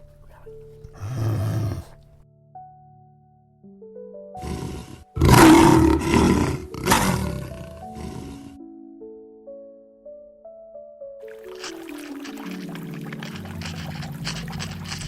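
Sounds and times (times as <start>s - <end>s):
lion roaring: 0.0s - 2.2s, 4.4s - 8.6s
soft background music: 0.0s - 15.0s.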